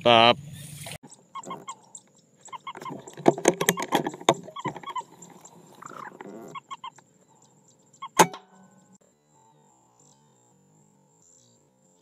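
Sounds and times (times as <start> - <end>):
clucking bird calls: 1.0 - 9.0.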